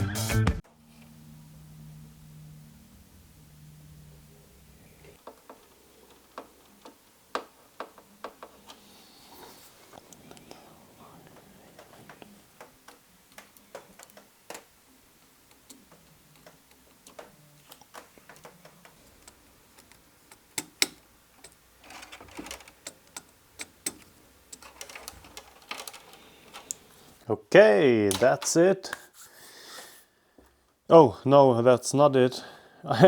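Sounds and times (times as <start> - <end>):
small clicks and taps: 15.5 - 26.8.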